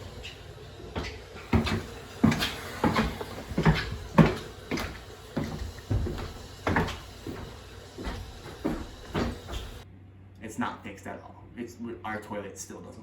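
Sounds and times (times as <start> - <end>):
short knocks and thumps: 1.0 - 9.8.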